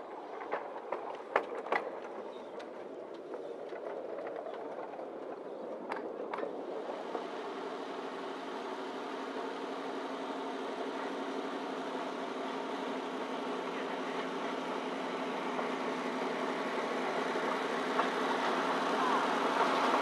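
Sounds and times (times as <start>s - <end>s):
train rumble: 0.0s - 20.0s.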